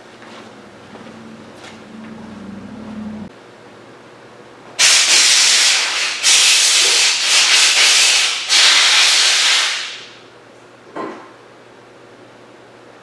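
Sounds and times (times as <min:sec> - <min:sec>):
compressed air hissing blasts: 0:04.8 - 0:10.2.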